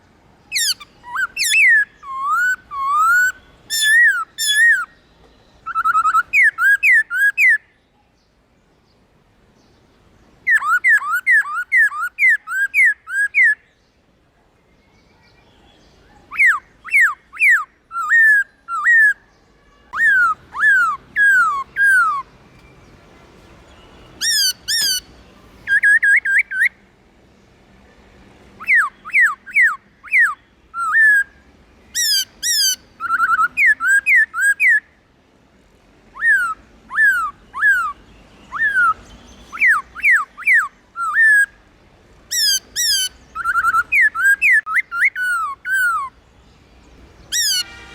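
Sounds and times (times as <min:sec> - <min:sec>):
bird whistling downward notes: 0:32.0 - 0:34.9, 0:42.3 - 0:46.1.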